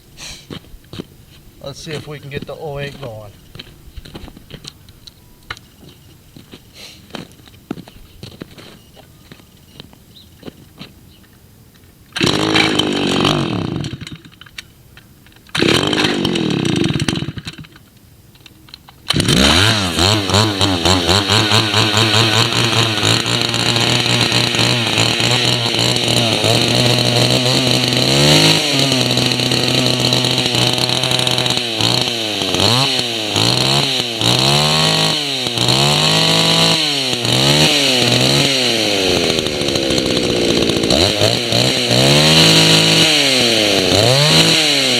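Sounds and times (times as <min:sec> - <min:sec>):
chainsaw engine starting and revving: 0:12.2 - 0:14.4, 0:15.5 - 0:17.8, 0:19.1 - 0:44.9.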